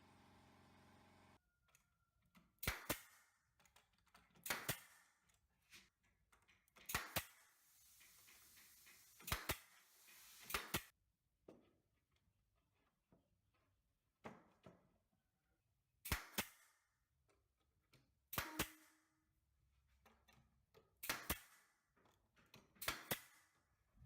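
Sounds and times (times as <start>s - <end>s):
faint hiss: 7.5s - 10.9s.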